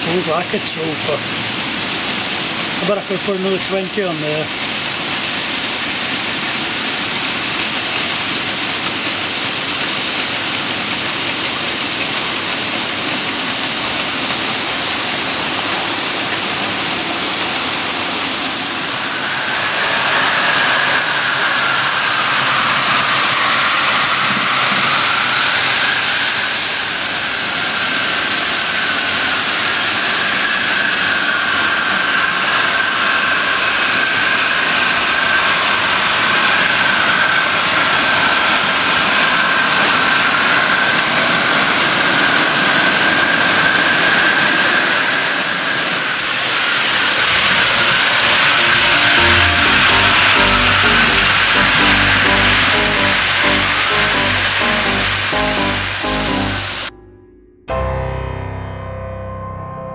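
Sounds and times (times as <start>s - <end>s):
model train wheels rattling on rails: 0.0s - 31.0s.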